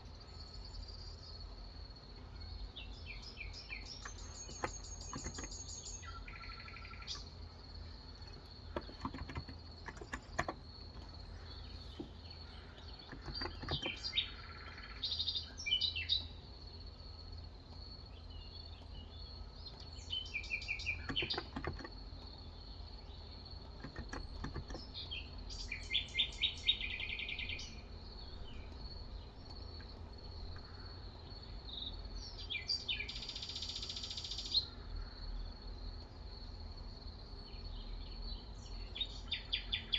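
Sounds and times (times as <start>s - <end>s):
songbirds chirping and trilling: 0.0s - 39.9s
soft keyboard keystrokes: 4.0s - 5.7s, 8.3s - 11.2s, 13.1s - 14.0s, 21.1s - 22.0s, 23.7s - 24.9s.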